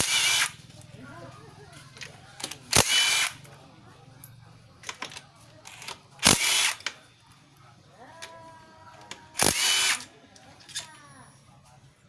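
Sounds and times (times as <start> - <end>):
cordless impact driver bursts: 0.0 - 0.6, 2.7 - 3.4, 6.2 - 6.8, 9.4 - 10.0.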